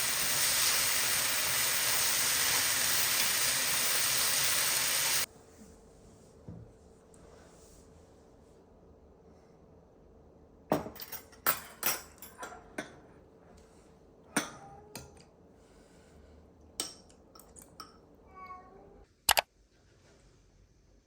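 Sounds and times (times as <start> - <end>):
dishes and cutlery clinking: 10.7 - 13.1, 16.8 - 18.0.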